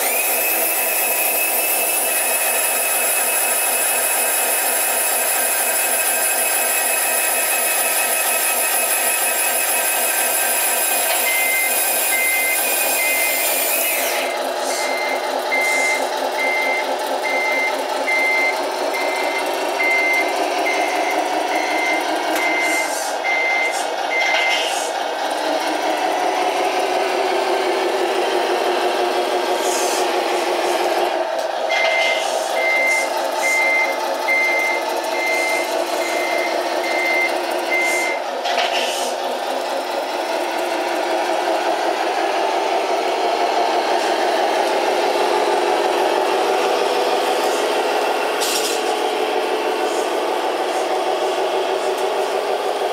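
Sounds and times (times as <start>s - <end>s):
reversing beeper: 0.0s - 24.7s, 31.7s - 38.3s
truck engine sound: 0.0s - 52.9s.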